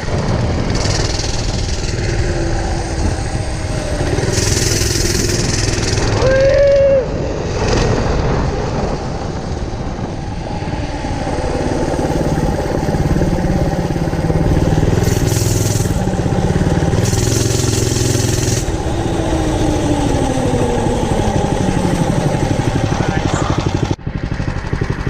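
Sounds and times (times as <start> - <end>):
minibike engine revving: 0.0 - 25.0.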